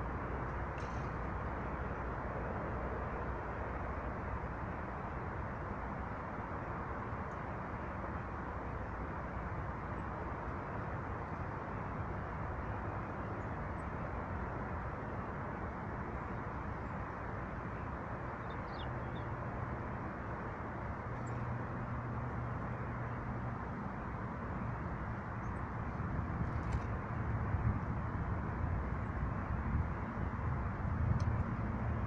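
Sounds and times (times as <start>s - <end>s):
low outdoor rumble: 0.0s - 32.0s.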